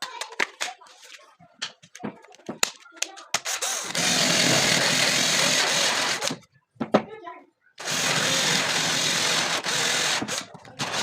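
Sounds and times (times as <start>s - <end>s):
handheld power tool running: 3.5s - 6.4s, 7.8s - 11.0s.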